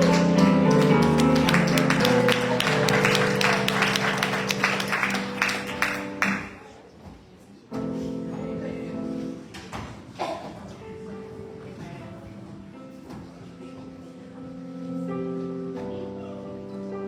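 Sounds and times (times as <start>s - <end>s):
congregation applauding: 0.0s - 6.6s.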